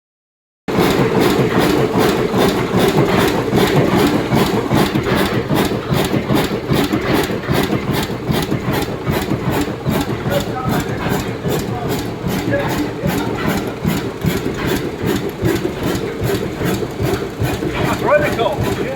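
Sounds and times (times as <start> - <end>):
oil engine running steadily: 0.7 - 18.9.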